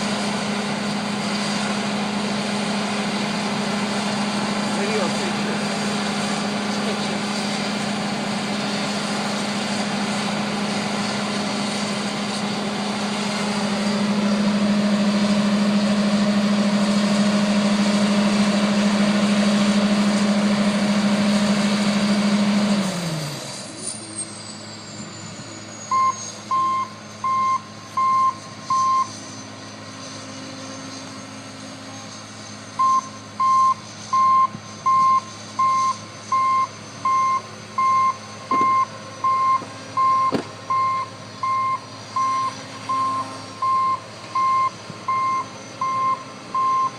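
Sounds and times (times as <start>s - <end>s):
combine harvester engine running: 0.0s - 46.9s
reversing alarm beeping: 24.1s - 29.6s, 32.2s - 46.9s.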